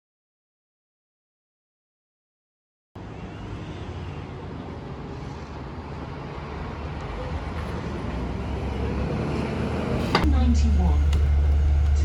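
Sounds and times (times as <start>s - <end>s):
motor vehicle rumbling: 3.0s - 12.0s.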